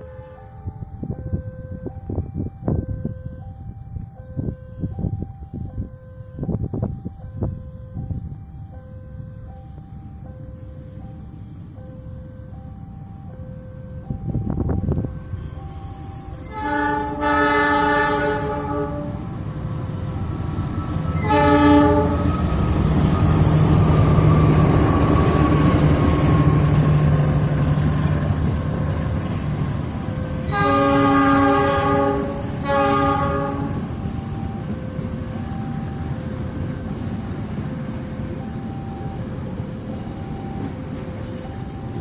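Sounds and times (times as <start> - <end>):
train rumbling by: 6.4 - 42.0
locomotive horn blasts: 16.4 - 19.3, 21.1 - 22.5, 30.5 - 34.0.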